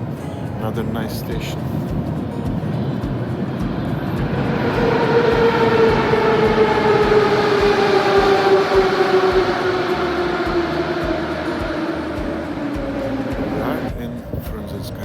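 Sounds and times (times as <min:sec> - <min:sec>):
train rumble: 0:00.0 - 0:14.8
electric motor whine: 0:03.6 - 0:13.9.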